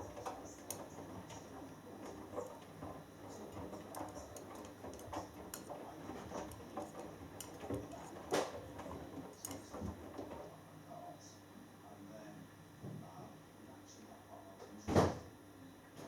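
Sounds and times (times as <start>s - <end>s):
washing machine drum turning: 0.0s - 10.3s
clicks and knocks in drum: 0.0s - 10.4s.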